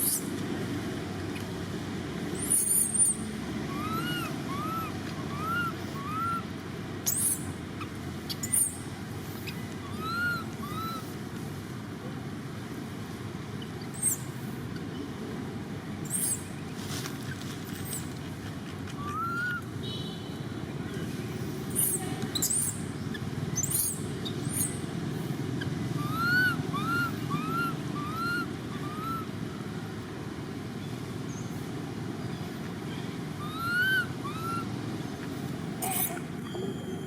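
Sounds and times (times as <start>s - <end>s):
animal calls rising and falling: 2.4s - 6.5s, 9.4s - 11.1s, 18.9s - 19.7s, 26.0s - 29.4s, 33.4s - 34.7s.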